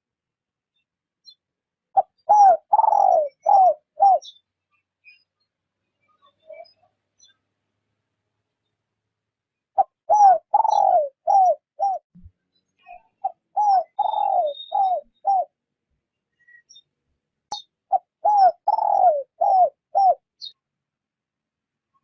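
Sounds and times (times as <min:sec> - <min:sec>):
dove cooing: 0:02.0 - 0:04.3, 0:09.8 - 0:12.0, 0:13.2 - 0:15.5, 0:17.9 - 0:20.2.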